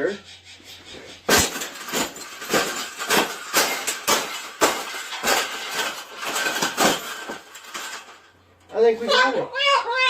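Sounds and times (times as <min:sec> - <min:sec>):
wire cage knocks and clinks: 0:01.2 - 0:08.4.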